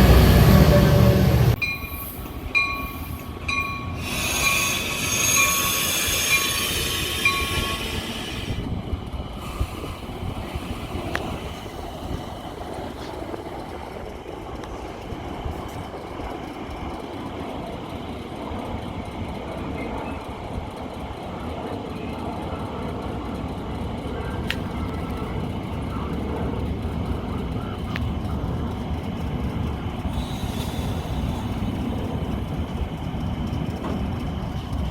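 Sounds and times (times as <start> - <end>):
train brakes squealing and hissing: 0.0 - 8.6, 30.1 - 32.3
train rolling on rails: 0.0 - 34.9.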